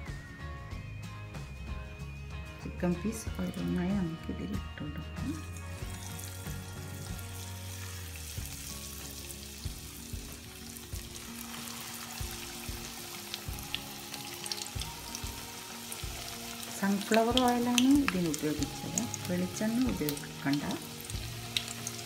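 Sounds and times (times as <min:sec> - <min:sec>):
chicken frying in oil: 0:05.2 - 0:22.0
oil crackling and popping: 0:05.4 - 0:22.0.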